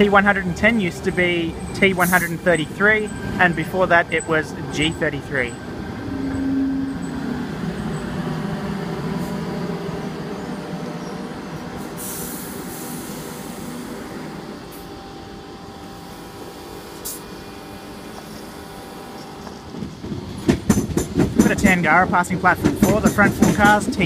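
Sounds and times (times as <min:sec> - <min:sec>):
electric train humming: 0:00.0 - 0:24.0
hissing air burst: 0:11.8 - 0:13.9.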